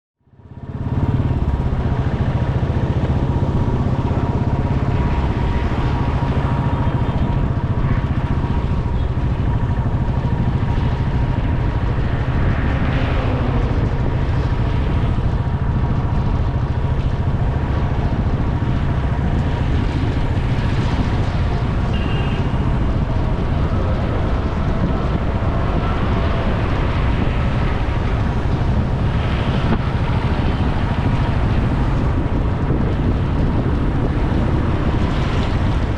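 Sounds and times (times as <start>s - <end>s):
surrounding traffic: 0.2s - 35.9s
wind rumble on microphone: 0.2s - 35.9s
motorcycle engine: 0.3s - 35.9s.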